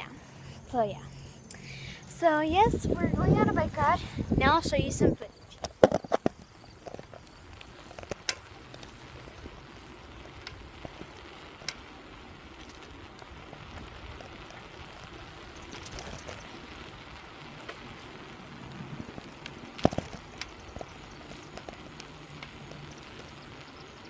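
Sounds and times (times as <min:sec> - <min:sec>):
bicycle tyres rolling on road: 0:00.0 - 0:24.0
small clicks and rattles: 0:05.6 - 0:09.5, 0:10.1 - 0:12.0, 0:12.6 - 0:24.0.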